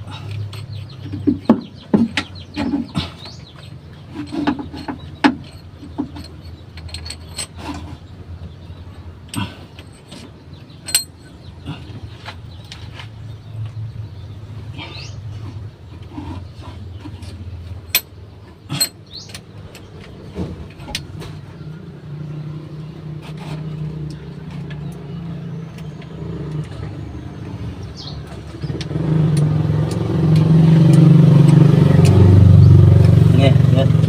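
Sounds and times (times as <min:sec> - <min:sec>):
vehicle engine running: 0:00.0 - 0:34.0
sharp metallic clicks and knocks: 0:09.4 - 0:11.3.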